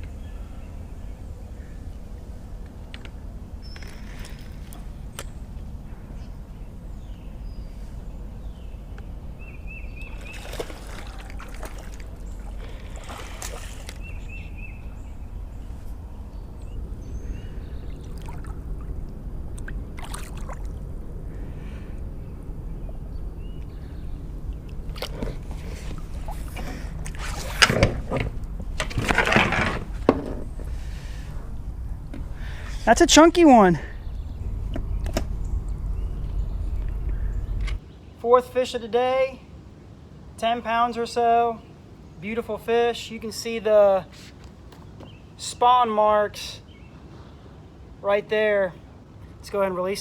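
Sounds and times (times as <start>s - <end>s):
water sloshing and trickling: 7.6s - 38.0s
rush of moving water: 10.0s - 14.3s, 18.0s - 20.8s
water splashes: 10.0s - 14.5s, 17.9s - 21.0s, 24.5s - 29.6s.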